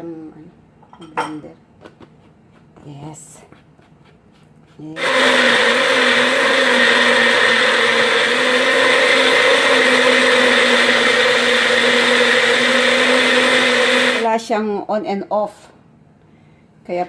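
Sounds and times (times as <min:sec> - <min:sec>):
electric blender whining: 0:05.0 - 0:14.3.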